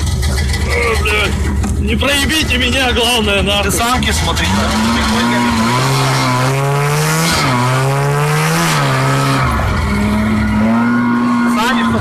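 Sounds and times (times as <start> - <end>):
small engine running hard: 3.6 - 12.0.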